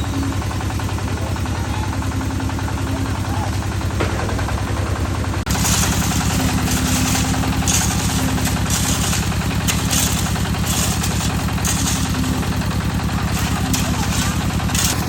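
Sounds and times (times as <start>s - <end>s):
small engine running: 0.0s - 15.0s
gritty hiss and rattle: 5.5s - 15.0s.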